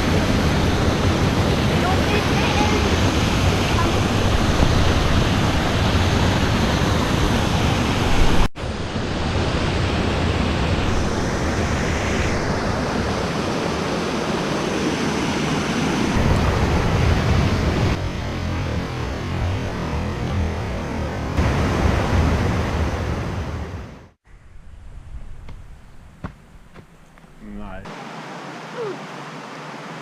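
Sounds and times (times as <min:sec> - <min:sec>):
rush of falling water: 0:00.0 - 0:08.5, 0:27.9 - 0:30.0
wind buffeting microphone: 0:00.0 - 0:14.8.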